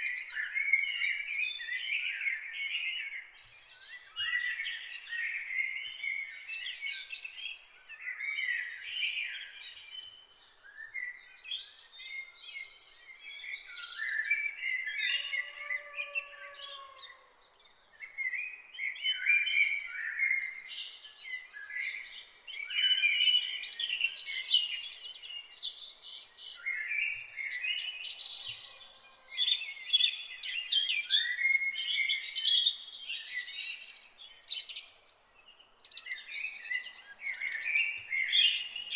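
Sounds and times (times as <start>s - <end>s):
songbirds chirping and trilling: 0.0s - 38.9s
lower-pitched bird call: 14.8s - 17.3s.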